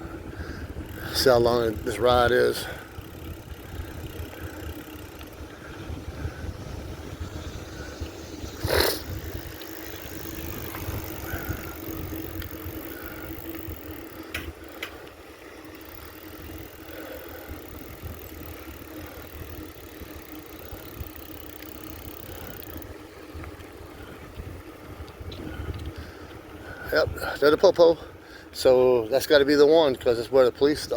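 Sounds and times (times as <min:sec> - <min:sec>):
faint steady hum: 0:00.0 - 0:27.4
bicycle tyres rolling: 0:00.0 - 0:30.9
faint clicks: 0:04.0 - 0:05.4, 0:09.6 - 0:15.2, 0:24.3 - 0:26.4
wind on microphone: 0:05.3 - 0:14.0, 0:24.1 - 0:26.2.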